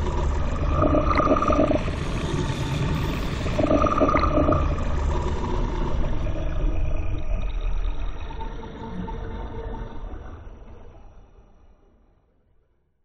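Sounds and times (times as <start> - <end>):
low rumbling noise bed: 0.0 - 11.8
wavering electronic tones: 0.4 - 2.2, 3.4 - 4.8.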